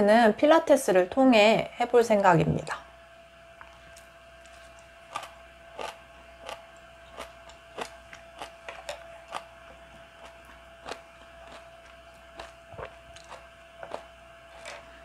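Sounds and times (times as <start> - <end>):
faint steady hum: 0.0 - 15.0
close chewing with wet clicks: 3.6 - 14.9.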